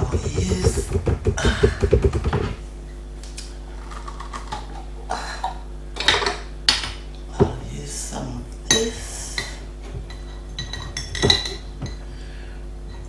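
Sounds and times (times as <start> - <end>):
sharp knocks: 0.0 - 2.6.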